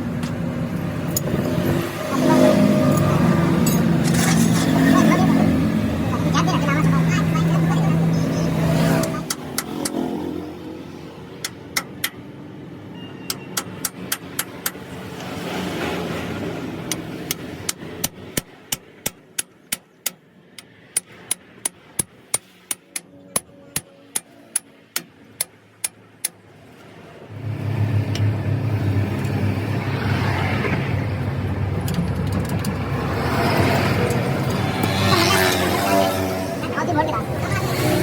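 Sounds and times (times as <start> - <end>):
sharp metallic clicks: 9.0 - 10.1, 11.4 - 12.3, 13.3 - 15.3.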